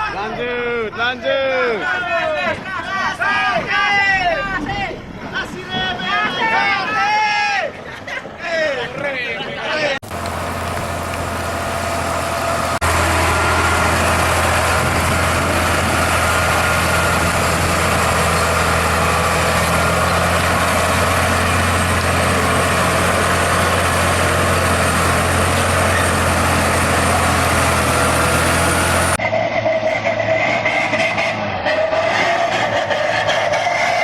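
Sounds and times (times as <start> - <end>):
heavy truck engine humming: 10.0 - 34.0.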